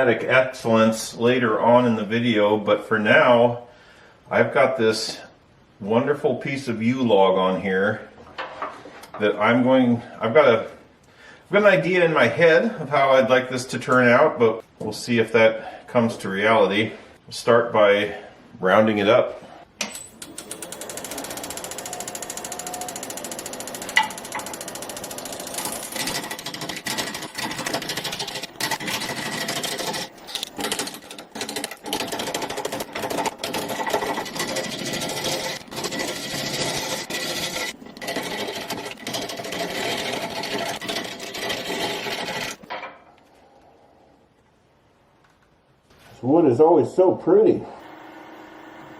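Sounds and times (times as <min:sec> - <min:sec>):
wood lathe gouge cutting: 0:20.2 - 0:42.6.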